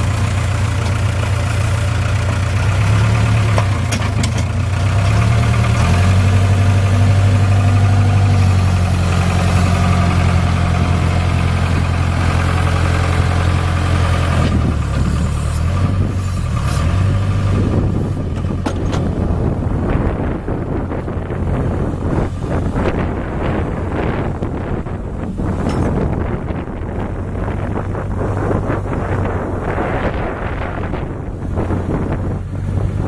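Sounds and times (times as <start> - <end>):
loader diesel engine running: 0.0 - 33.0.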